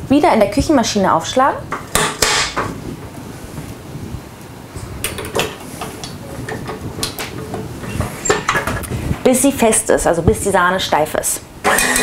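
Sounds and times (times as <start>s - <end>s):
metal clicks and knocks: 5.0s - 8.9s.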